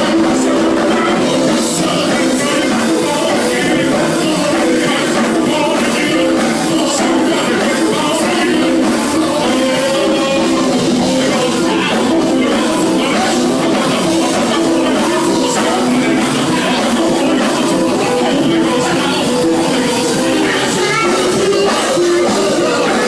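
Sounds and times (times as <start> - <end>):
live gospel band music: 0.0 - 23.0
person singing: 0.0 - 23.0.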